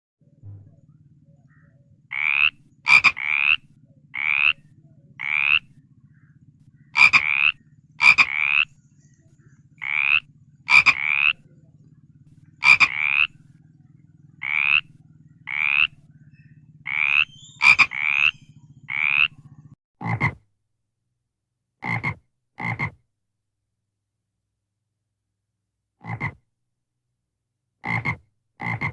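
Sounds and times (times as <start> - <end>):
steady low hum: 0.2 - 19.8
frog croaking: 1.5 - 8.8, 9.8 - 13.6, 14.2 - 20.4, 21.8 - 23.0, 26.0 - 26.4, 27.8 - 28.9.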